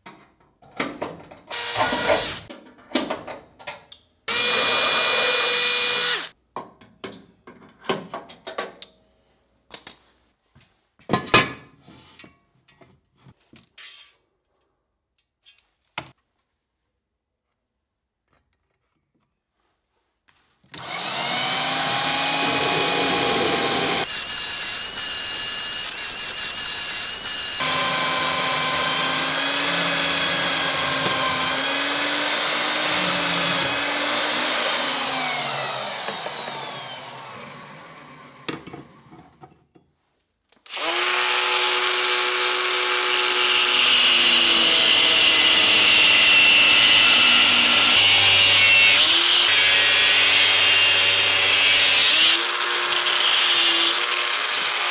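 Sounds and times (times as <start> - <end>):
angle grinder whining on steel: 1.5 - 2.5, 4.3 - 6.3, 20.8 - 39.2, 40.7 - 54.9.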